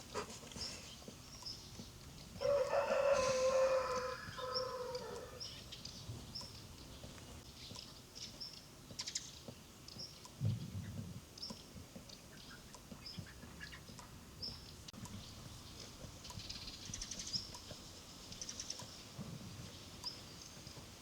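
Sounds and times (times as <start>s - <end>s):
small bird chirping: 0.6s - 2.6s, 3.6s - 20.8s
rooster crowing: 2.4s - 5.4s.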